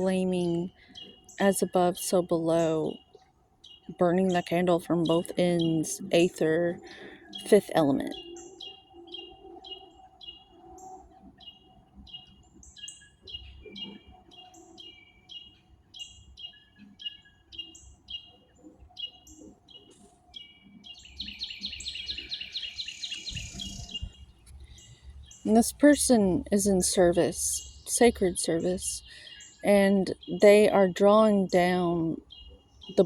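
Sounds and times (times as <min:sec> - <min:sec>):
fast dense bird trill: 0:00.0 - 0:33.0
songbirds chirping: 0:00.0 - 0:33.0.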